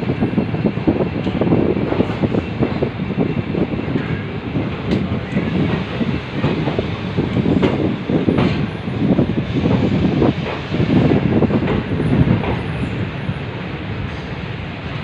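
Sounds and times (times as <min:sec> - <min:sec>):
train wheels rumbling on track: 0:00.0 - 0:15.0
rail clacks and knocks: 0:03.8 - 0:13.0.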